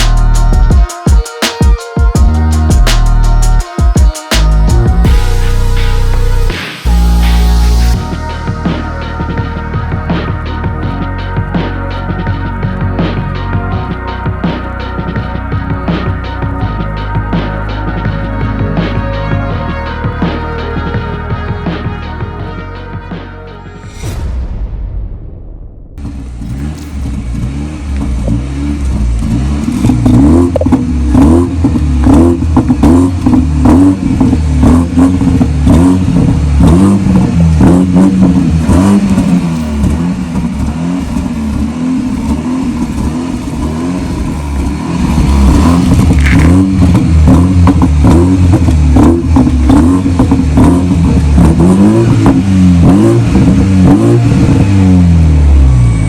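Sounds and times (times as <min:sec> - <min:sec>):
car engine revving: 0:25.9 - 0:56.0
exhaust crackles: 0:26.0 - 0:56.0.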